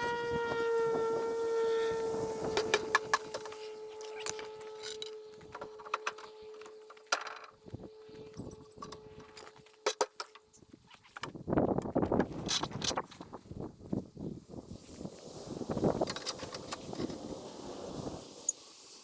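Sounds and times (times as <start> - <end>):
steady machine whine: 0.0 - 10.5.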